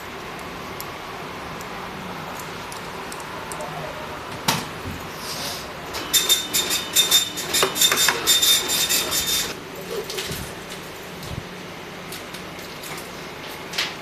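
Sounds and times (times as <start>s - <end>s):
metal parts scraping and squeaking: 6.0s - 9.6s.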